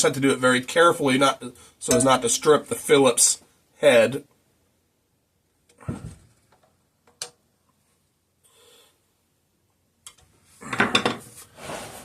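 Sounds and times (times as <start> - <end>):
rasping scraping noise: 11.4 - 12.0.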